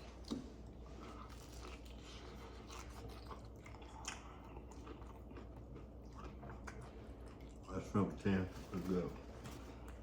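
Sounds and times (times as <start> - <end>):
person chewing food: 0.0 - 7.9.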